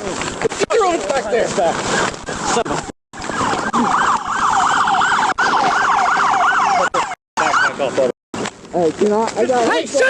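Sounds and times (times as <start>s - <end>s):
police siren yelping: 3.2s - 7.9s.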